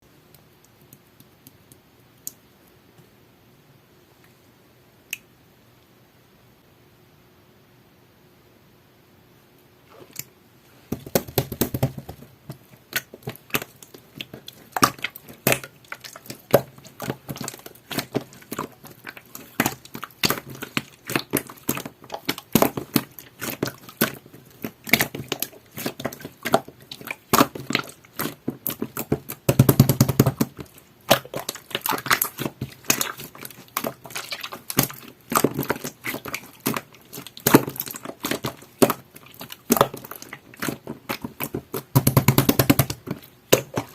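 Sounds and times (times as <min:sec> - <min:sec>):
slime squeezed by hand: 0:12.8 - 0:43.9.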